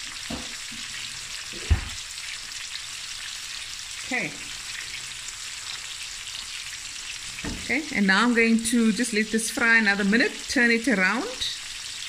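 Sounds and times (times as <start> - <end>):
prawns sizzling in a frying pan: 0.0 - 12.0.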